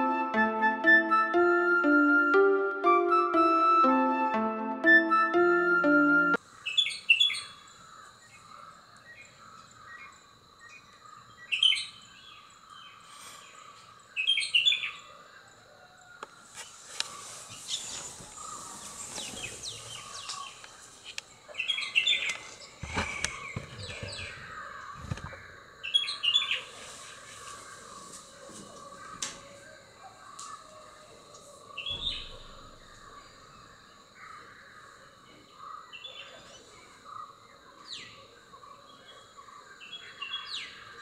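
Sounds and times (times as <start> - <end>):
birds chirping: 16.6 - 41.0.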